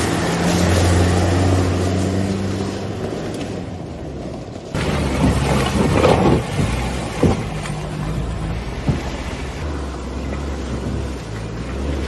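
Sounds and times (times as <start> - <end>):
pickup engine running: 2.9 - 12.0.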